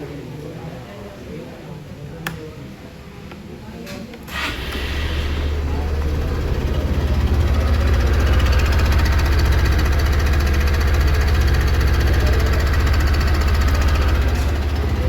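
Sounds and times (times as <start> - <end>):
scooter engine running: 4.3 - 15.0.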